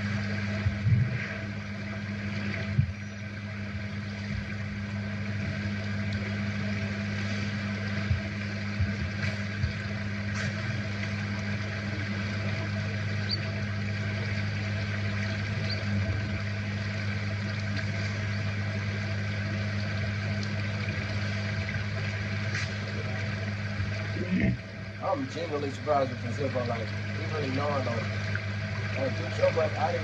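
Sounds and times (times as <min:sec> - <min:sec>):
low motor hum: 0:00.0 - 0:30.0.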